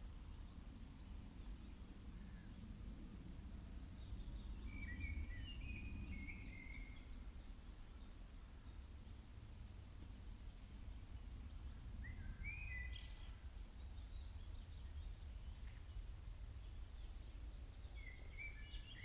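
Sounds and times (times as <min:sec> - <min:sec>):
whistled bird notes: 0:12.0 - 0:13.4, 0:17.8 - 0:19.0.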